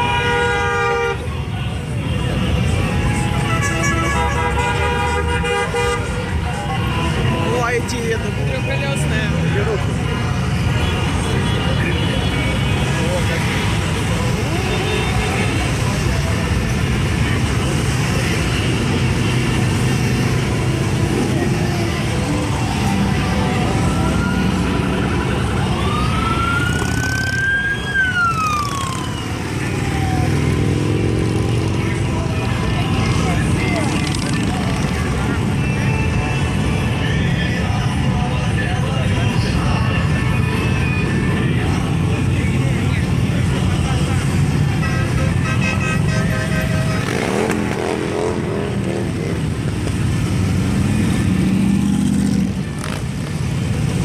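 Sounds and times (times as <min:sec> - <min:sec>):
motorcycle engines rumbling: 0:00.0 - 0:54.0
siren wailing: 0:22.4 - 0:31.2.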